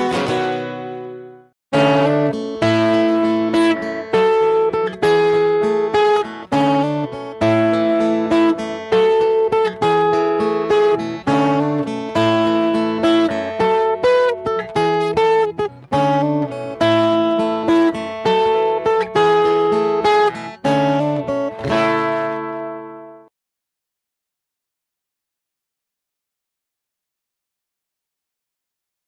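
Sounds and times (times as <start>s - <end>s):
acoustic guitar strummed and picked: 0.0s - 23.3s.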